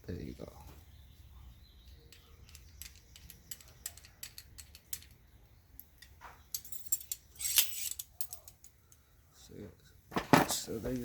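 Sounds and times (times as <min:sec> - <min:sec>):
metal parts clicking and rattling: 0:01.9 - 0:09.0.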